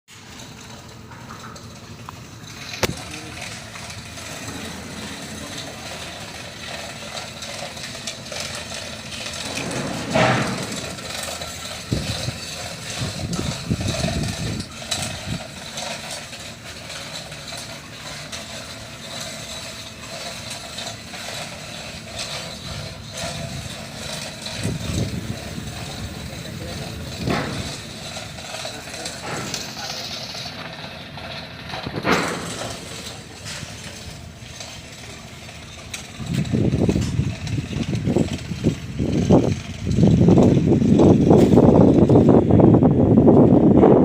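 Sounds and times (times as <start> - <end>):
steering gear clanking: 0.1 - 42.4.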